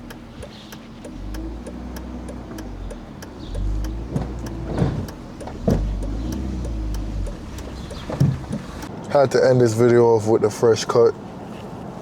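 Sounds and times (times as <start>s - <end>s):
engine ticking: 0.0s - 8.9s
car engine rumbling: 0.0s - 9.0s
heavy knocks: 3.6s - 6.7s, 7.3s - 8.8s.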